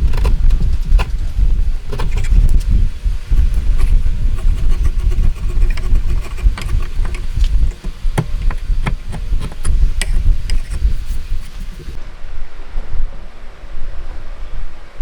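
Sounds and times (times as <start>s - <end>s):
hand tools tapping wood: 0.0s - 2.7s, 3.4s - 12.0s
wind rumble on microphone: 0.0s - 15.0s.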